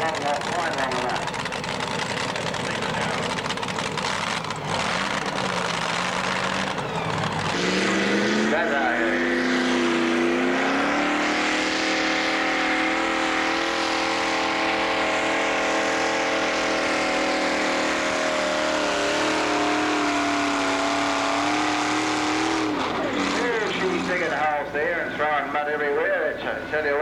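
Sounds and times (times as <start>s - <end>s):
tractor engine running under load: 0.0s - 9.0s, 13.0s - 27.0s.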